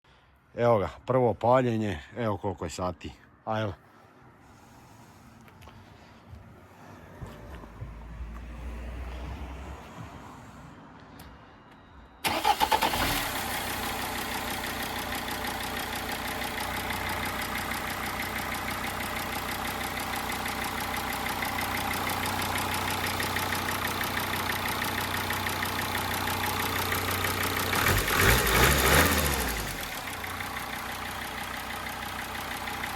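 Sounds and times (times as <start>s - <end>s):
diesel engine cranking: 12.2s - 17.2s, 19.3s - 31.8s
diesel engine idling: 12.2s - 32.9s.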